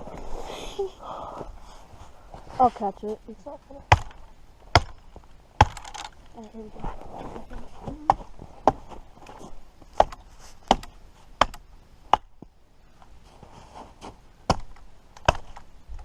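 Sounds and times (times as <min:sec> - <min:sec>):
blade chopping into tree trunk: 0:03.9 - 0:05.0, 0:05.6 - 0:06.1, 0:09.9 - 0:12.3, 0:14.5 - 0:15.6.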